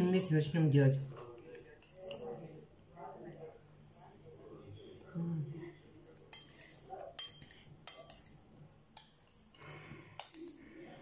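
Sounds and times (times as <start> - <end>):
spoon clinking against a dish: 1.4 - 2.6, 6.1 - 11.0.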